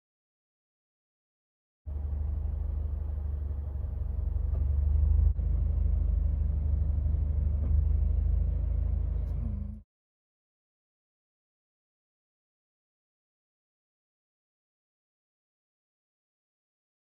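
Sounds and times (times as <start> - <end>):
car engine and road rumble: 1.9 - 9.8.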